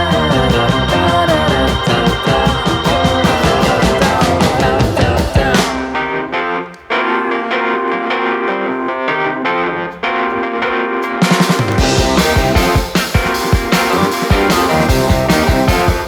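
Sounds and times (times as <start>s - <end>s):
drums: 0.0s - 6.3s, 11.0s - 16.0s
electric guitar: 0.0s - 16.0s
keyboard: 0.0s - 16.0s.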